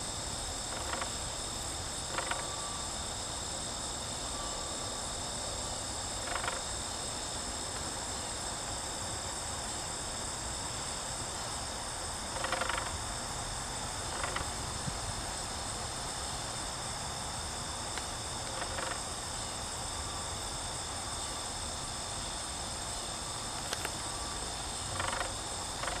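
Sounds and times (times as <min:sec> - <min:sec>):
crickets chirring: 0:00.0 - 0:26.0.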